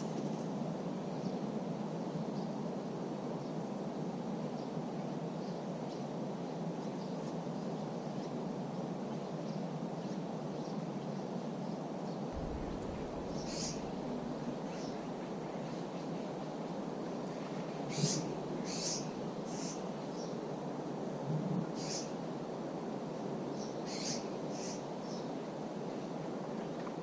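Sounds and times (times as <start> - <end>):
wind through leafy trees: 0.0 - 27.0
bird chirps: 12.4 - 16.0.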